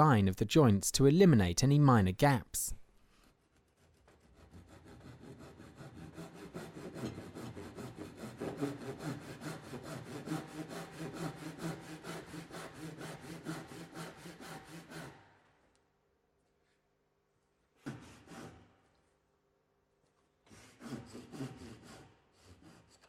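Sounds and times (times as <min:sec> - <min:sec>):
hand saw cutting timber: 0:03.4 - 0:15.4, 0:17.8 - 0:18.8, 0:20.5 - 0:23.0.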